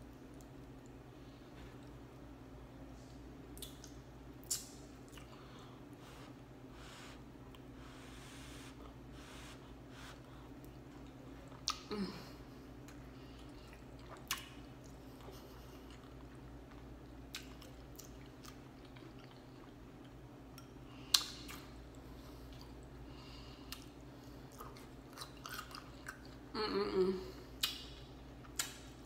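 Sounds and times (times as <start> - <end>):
chewing and mouth sounds: 3.5 - 5.6, 10.1 - 11.9, 12.8 - 23.0, 23.6 - 26.5, 27.6 - 29.0.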